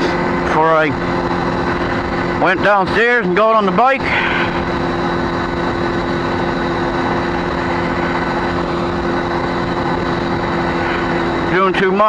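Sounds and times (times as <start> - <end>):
motorcycle engine running: 0.0 - 12.0
wind noise: 0.0 - 12.0.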